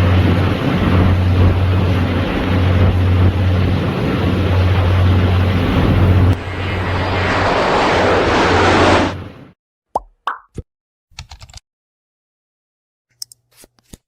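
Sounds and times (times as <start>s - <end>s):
ship engine droning: 0.0s - 9.4s
wind: 0.0s - 9.5s.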